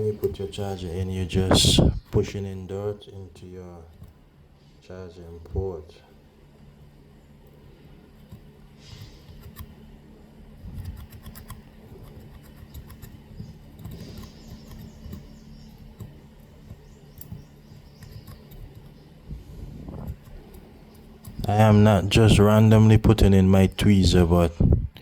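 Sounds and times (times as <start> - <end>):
steady low hum: 0.0 - 25.0
small clicks: 10.6 - 19.0.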